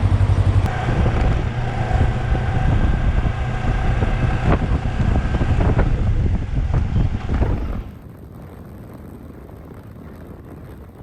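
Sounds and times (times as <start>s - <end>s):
motorcycle engine running: 0.0s - 8.0s
wind buffeting microphone: 0.1s - 11.0s.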